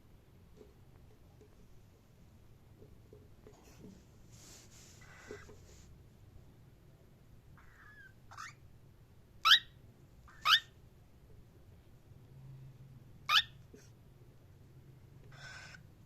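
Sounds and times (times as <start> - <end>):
cockatiel chirping: 5.0 - 5.6, 7.6 - 8.7, 9.4 - 10.8, 13.2 - 13.6, 15.3 - 15.8.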